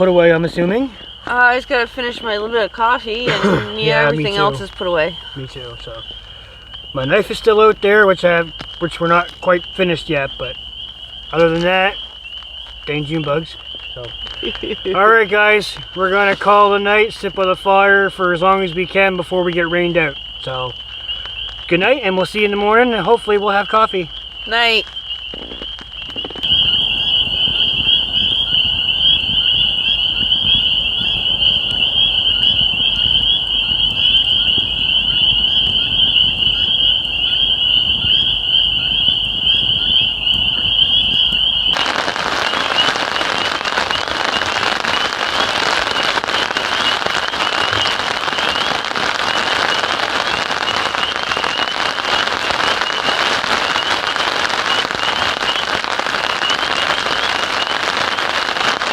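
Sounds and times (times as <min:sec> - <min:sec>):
night chorus trill: 0:00.0 - 0:09.0, 0:26.3 - 0:58.0
heavy rain hiss: 0:00.0 - 0:10.6, 0:26.4 - 0:58.9
low crackle: 0:00.0 - 0:58.9.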